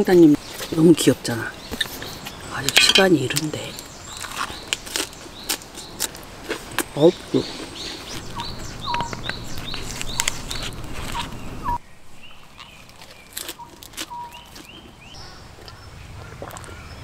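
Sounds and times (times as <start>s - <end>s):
bird calling in rising notes: 7.8s - 12.8s.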